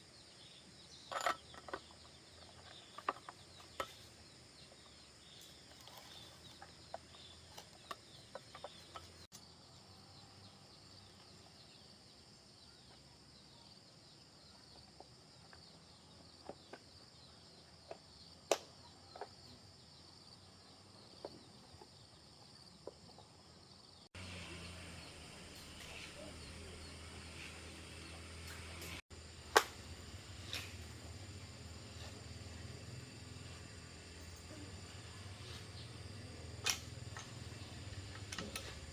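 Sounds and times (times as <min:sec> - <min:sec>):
insects chirring: 0:00.0 - 0:38.9
hand tools clicking and tapping: 0:01.1 - 0:04.2, 0:05.4 - 0:09.4.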